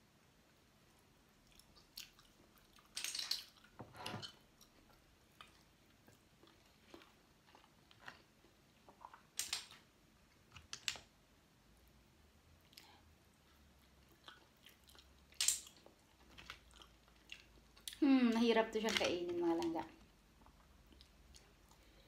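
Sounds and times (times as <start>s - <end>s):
close chewing mouth noises: 1.4s - 9.3s, 12.6s - 18.0s, 19.9s - 22.0s.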